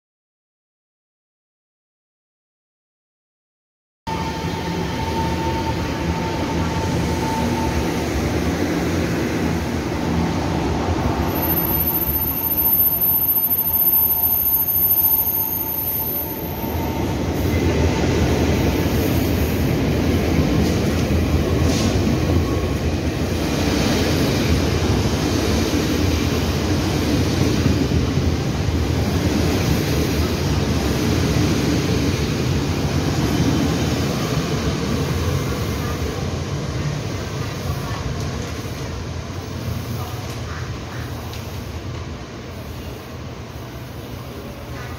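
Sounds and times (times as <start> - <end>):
thin steady whine: 11.2 - 17.2.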